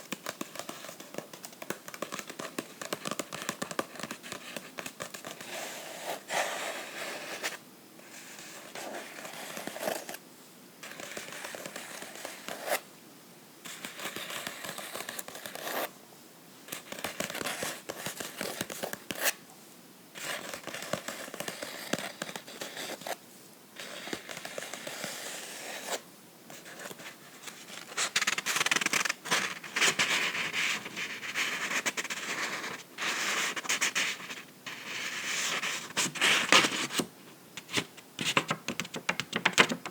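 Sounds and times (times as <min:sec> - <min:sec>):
fingernails scratching a book: 0:01.9 - 0:10.2, 0:10.8 - 0:12.8, 0:13.7 - 0:15.9, 0:20.2 - 0:23.2, 0:23.8 - 0:36.8.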